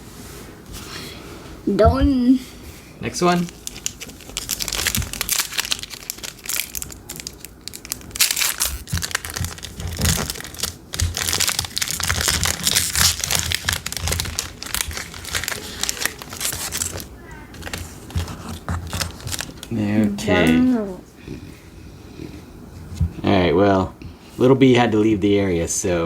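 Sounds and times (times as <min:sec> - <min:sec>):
plastic wrapper crinkling and tearing: 0:03.3 - 0:19.8.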